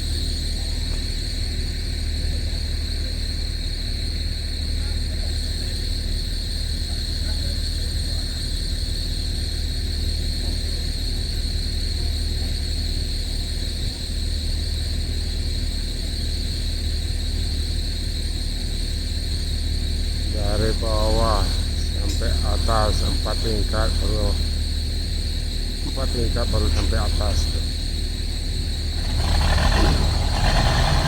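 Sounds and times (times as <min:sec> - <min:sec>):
ship machinery hum: 0:18.6 - 0:31.0.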